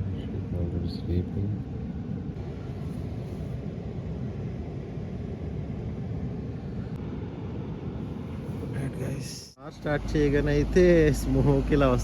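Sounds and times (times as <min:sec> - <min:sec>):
car engine idling: 0:08.3 - 0:12.0.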